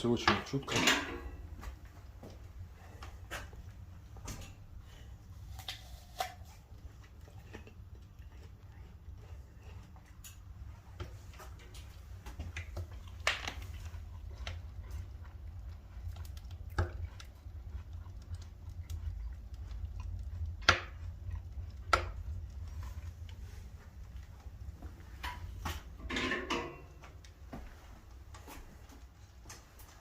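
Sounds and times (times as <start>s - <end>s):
steady low rumble: 6.5s - 26.1s
wood fire crackling: 9.9s - 26.1s.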